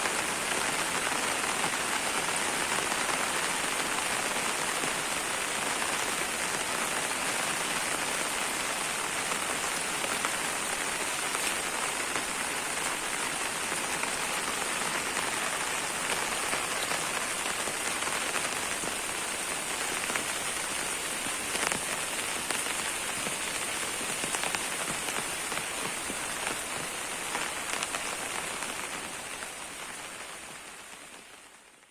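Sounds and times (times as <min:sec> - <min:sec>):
heavy rain falling: 0:00.0 - 0:31.9
sharp raindrop tick: 0:19.7 - 0:29.6.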